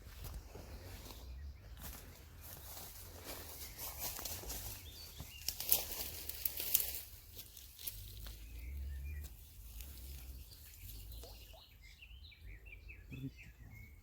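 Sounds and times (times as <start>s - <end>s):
footsteps crunching on forest litter: 0.0s - 10.9s
small bird chirping: 3.5s - 14.0s.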